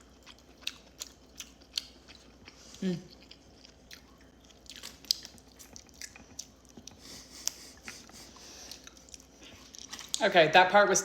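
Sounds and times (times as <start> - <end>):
chewing and biting crab meat: 0.0 - 10.2.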